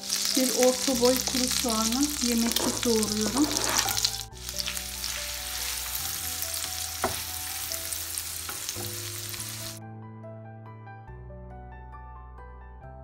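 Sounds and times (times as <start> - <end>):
onion sizzling in frying pan: 0.0 - 9.8
soft background music: 0.0 - 13.0
plastic spatula stirring: 2.4 - 6.1.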